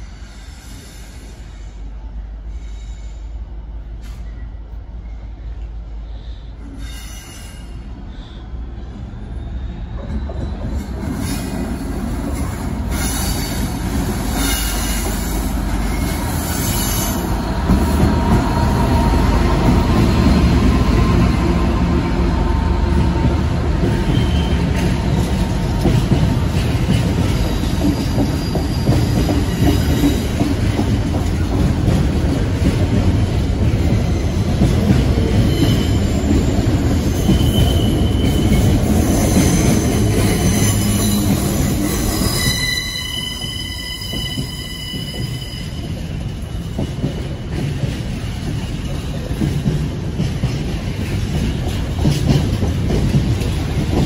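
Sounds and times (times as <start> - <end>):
freight train wheels rumbling: 0.0 - 54.0
high-pitched wheel squeal: 35.5 - 45.8.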